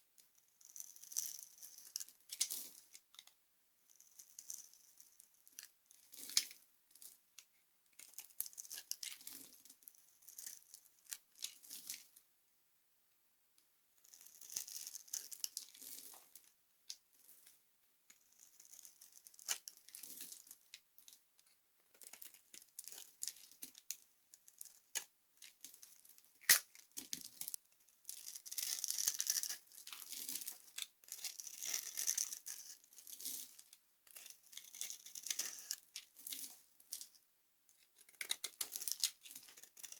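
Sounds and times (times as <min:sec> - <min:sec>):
dry soap crunching: 0:14.0 - 0:17.0, 0:18.1 - 0:21.2, 0:22.0 - 0:37.2, 0:37.8 - 0:39.9.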